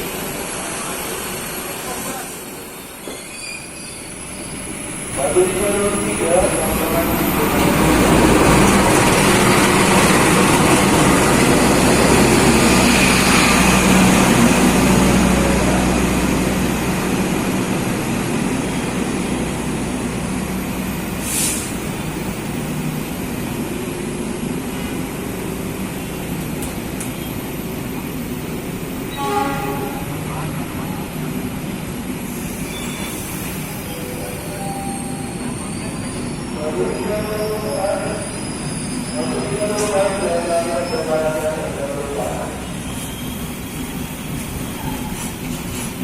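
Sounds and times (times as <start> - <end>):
train rumbling past: 0.0 - 46.0
brief hiss: 21.2 - 21.8.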